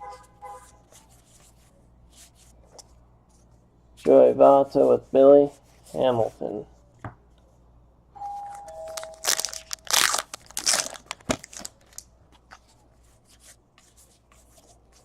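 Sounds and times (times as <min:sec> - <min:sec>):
cards being handled: 0:08.8 - 0:15.0
wrapper tearing and crinkling: 0:09.0 - 0:12.0.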